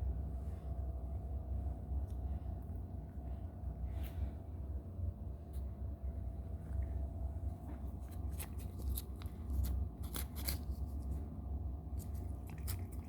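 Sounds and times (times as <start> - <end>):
cat licking and biting: 7.9 - 11.2, 11.9 - 13.0.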